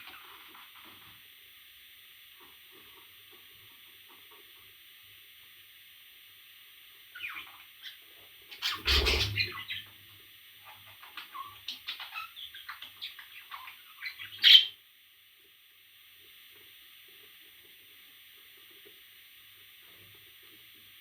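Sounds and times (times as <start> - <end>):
parrot chirping: 7.1 - 9.9, 10.6 - 14.8
parrot squawk: 8.6 - 9.8.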